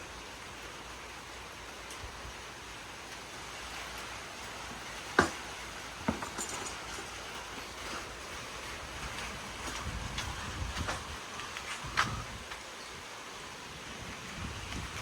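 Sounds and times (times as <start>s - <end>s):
rain and wind hiss: 0.0s - 15.0s
wind buffeting microphone: 7.2s - 15.0s.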